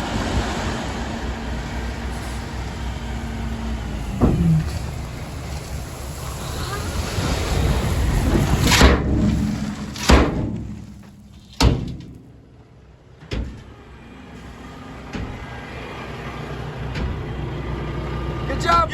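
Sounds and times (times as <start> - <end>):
truck engine running: 0.0 - 18.9
rock sliding out of truck: 0.5 - 12.4
sharp metal bangs: 8.6 - 12.5.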